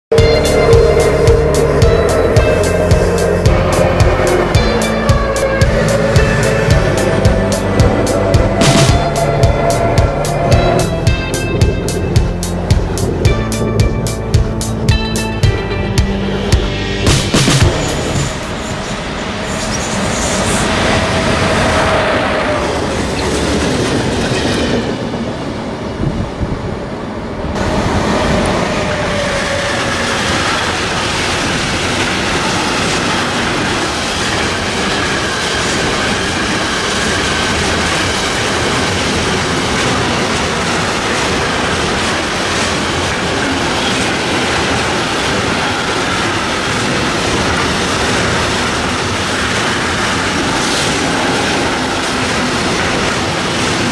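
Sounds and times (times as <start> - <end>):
train wheel and rail clatter: 17.5 - 53.9.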